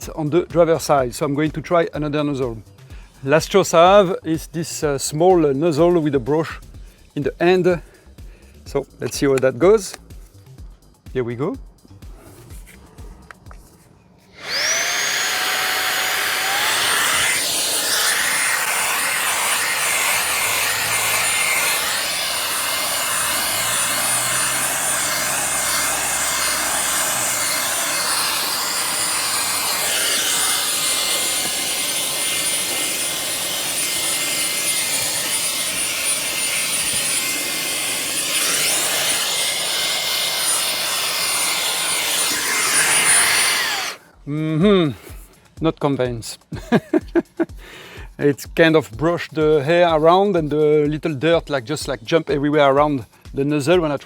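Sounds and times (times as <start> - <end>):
handheld vacuum motor whine: 14.3 - 44.0
brush nozzle on floor mat: 14.4 - 44.0.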